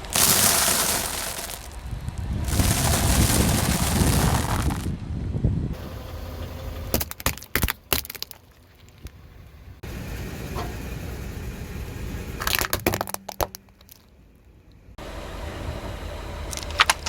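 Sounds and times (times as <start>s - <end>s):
sharp cracks: 0.0s - 4.9s, 6.9s - 9.1s
tyre crushing objects: 0.0s - 4.9s, 6.9s - 8.4s
car engine running: 0.0s - 17.0s.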